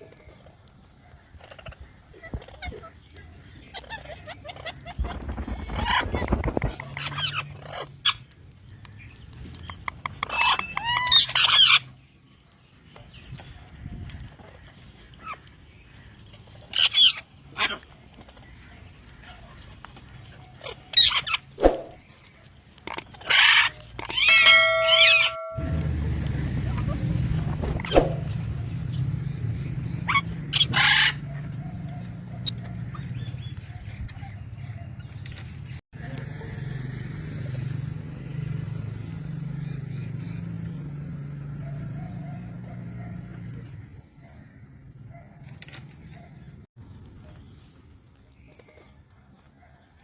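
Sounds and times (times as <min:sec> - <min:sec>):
parrot screeching: 0:10.2 - 0:11.8, 0:23.2 - 0:25.7, 0:30.1 - 0:31.2
low motor hum: 0:24.6 - 0:30.5.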